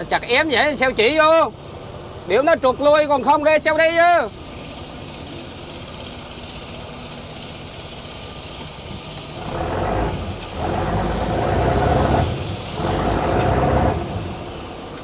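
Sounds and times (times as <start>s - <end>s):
boat diesel engine revving: 4.3s - 15.0s.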